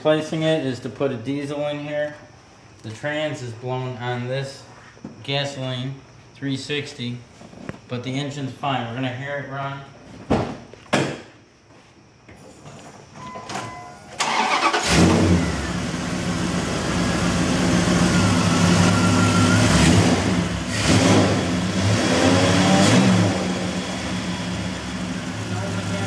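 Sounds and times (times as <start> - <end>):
car engine cranking: 14.2 - 26.0.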